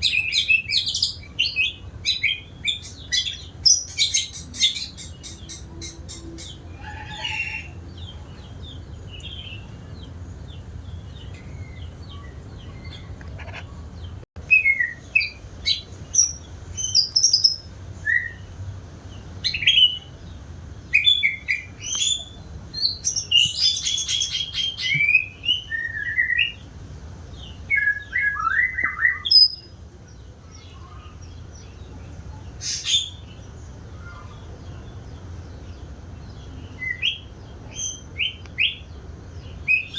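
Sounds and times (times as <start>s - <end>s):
steady low hum: 0.0s - 25.9s
bird singing whistled phrases: 14.5s - 15.4s, 21.0s - 26.6s, 27.7s - 29.7s.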